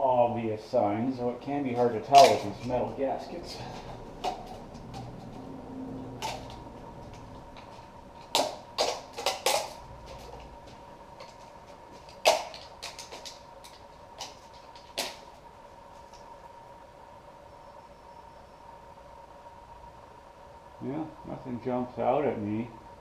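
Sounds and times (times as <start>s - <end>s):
faint steady hum: 0.0s - 23.0s
metal parts clicking and knocking: 2.1s - 2.8s.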